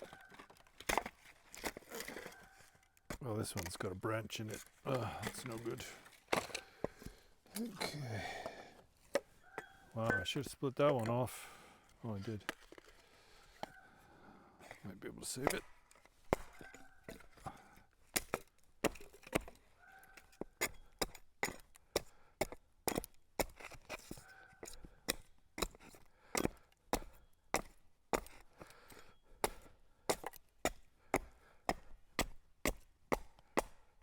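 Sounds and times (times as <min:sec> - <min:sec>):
axe chopping wood: 0:06.3 - 0:08.5, 0:15.3 - 0:17.5, 0:18.1 - 0:28.5, 0:29.4 - 0:34.0.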